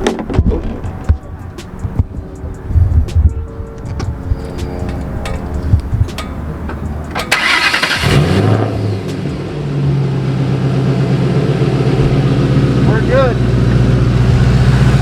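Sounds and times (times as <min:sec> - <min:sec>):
car engine idling: 0:00.8 - 0:15.0
starter motor cranking: 0:04.4 - 0:08.3.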